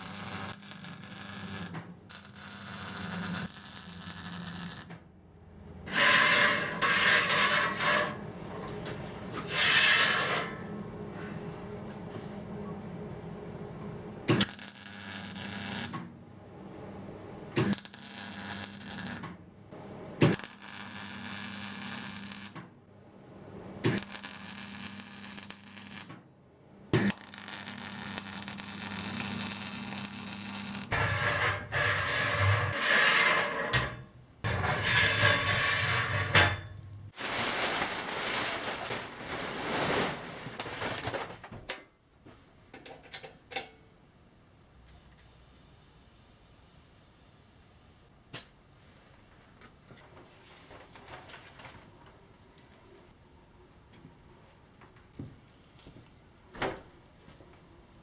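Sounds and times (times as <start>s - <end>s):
electric metalworking tools on steel: 0.0s - 5.0s, 5.8s - 10.7s, 14.3s - 16.0s, 17.6s - 19.3s, 20.2s - 22.6s, 23.8s - 26.1s, 27.0s - 37.1s.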